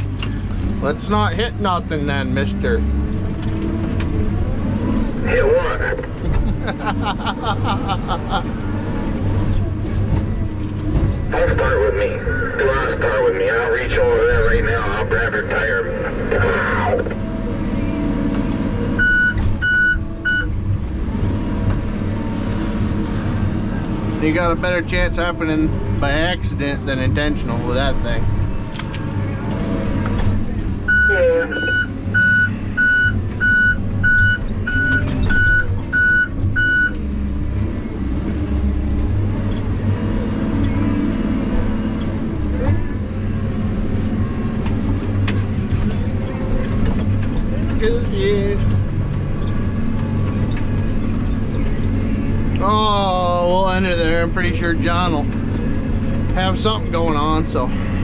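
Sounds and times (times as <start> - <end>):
heavy equipment engine running: 0.0 - 58.0
reversing alarm beeping: 19.0 - 20.5, 30.9 - 37.0.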